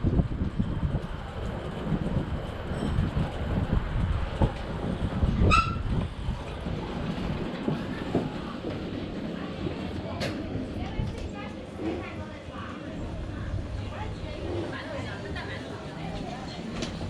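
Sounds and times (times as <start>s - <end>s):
electric bike ride rumble: 0.0s - 9.3s.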